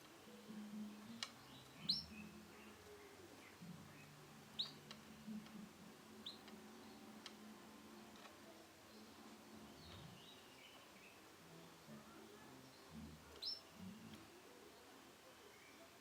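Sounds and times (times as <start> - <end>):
canary chirps: 0.3 - 5.1, 6.1 - 7.4, 12.7 - 14.2.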